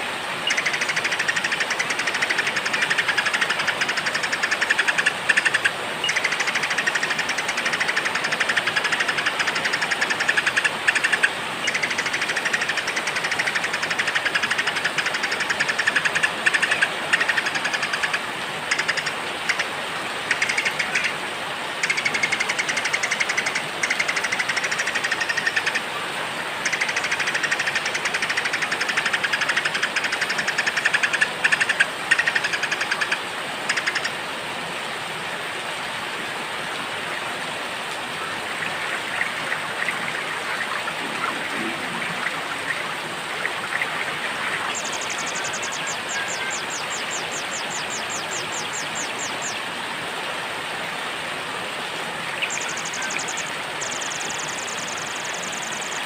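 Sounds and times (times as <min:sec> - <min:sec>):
steady rain: 0:00.0 - 0:56.0
songbirds singing trills: 0:43.7 - 0:49.6, 0:52.4 - 0:56.0.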